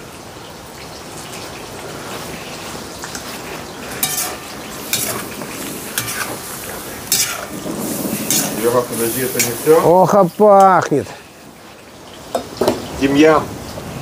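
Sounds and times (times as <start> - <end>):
celery sizzling in a skillet: 0.4 - 13.2
utensil scraping a pan: 3.1 - 9.9.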